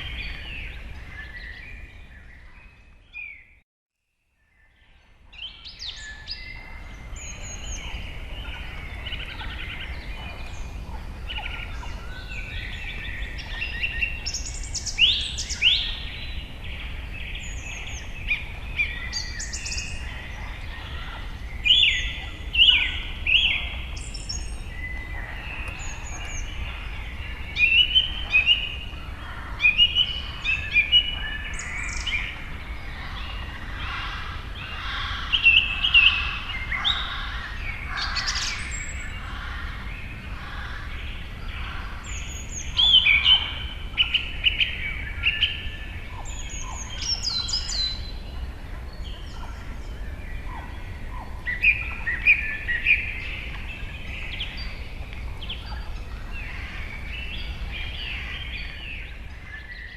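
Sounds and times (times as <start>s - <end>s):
birds chirping and trilling: 0.0s - 3.6s, 4.4s - 59.9s.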